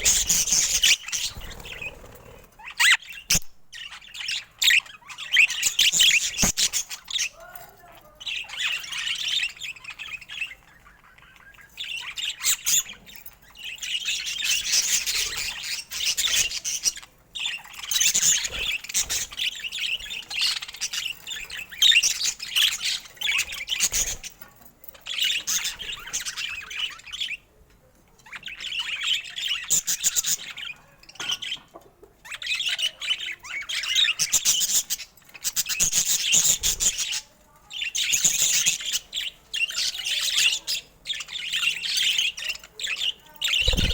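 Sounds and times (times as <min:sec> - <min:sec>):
budgerigar warbling and chattering: 0:39.7 - 0:43.9.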